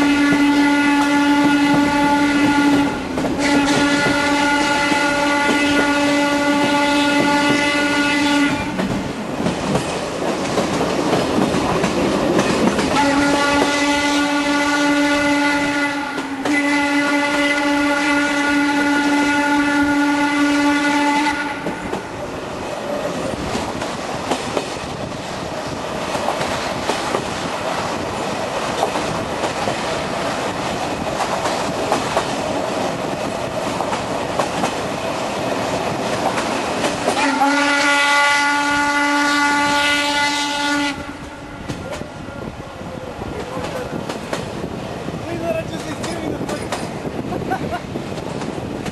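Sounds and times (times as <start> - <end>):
steam locomotive whistle: 0.0 - 8.8, 12.9 - 21.9, 37.1 - 42.5
train running on rails: 0.0 - 48.9.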